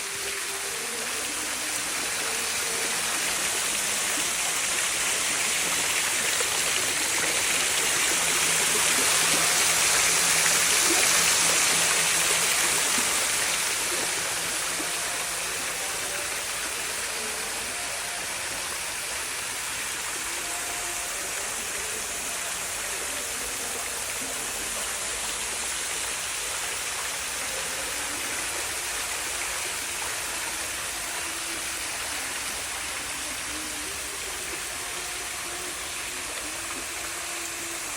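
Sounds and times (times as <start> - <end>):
fountain water splashing: 0.0 - 37.9.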